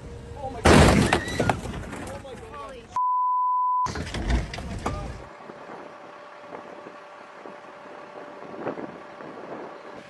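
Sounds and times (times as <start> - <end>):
vehicle running noise: 0.0 - 0.9, 3.9 - 10.0
wind buffeting microphone: 4.9 - 10.0.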